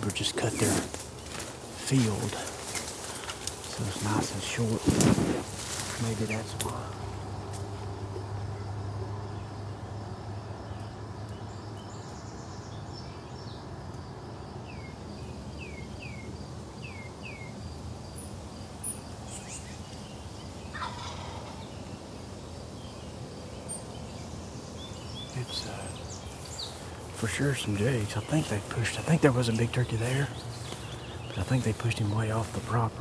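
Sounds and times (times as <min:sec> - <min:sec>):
distant turkeys gobbling: 0:20.7 - 0:21.8
steady low rumble: 0:23.8 - 0:33.0.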